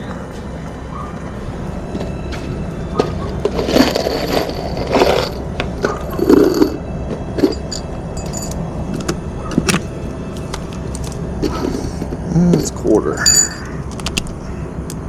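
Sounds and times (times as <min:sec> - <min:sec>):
steady low rumble: 0:00.0 - 0:15.0
metal tools clicking and rattling: 0:03.0 - 0:09.8, 0:10.4 - 0:14.3.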